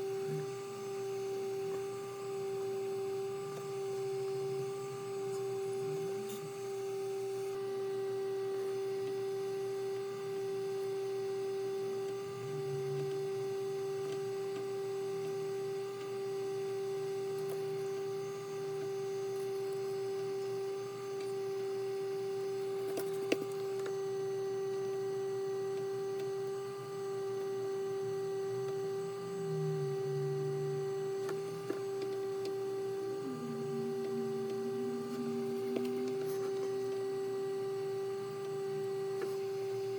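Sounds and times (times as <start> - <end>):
lower electronic tone: 23.6 - 39.9
steady electronic tone: 28.0 - 39.9.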